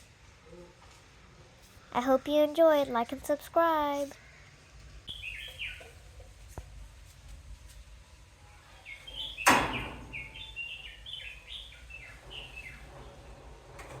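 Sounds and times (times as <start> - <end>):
birds chirping: 3.8 - 6.4, 8.6 - 13.5.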